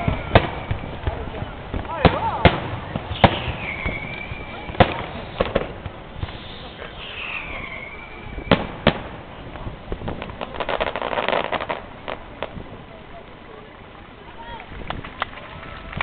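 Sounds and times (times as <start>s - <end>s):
falling firework whistle: 0.0s - 1.3s, 3.0s - 9.0s
firework shells bursting: 0.0s - 12.7s
firework crackling: 0.0s - 16.0s.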